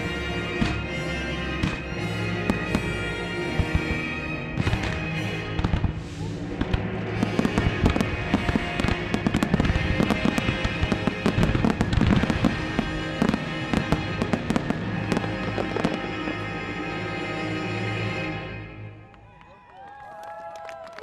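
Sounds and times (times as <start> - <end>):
fireworks shells and crackling: 0.0 - 16.7
music soundtrack: 0.0 - 19.4.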